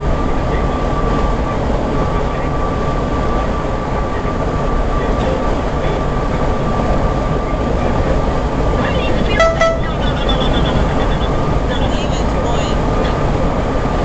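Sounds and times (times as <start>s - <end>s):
road and tyre noise: 0.0s - 14.0s
thin steady high tone: 9.2s - 10.6s.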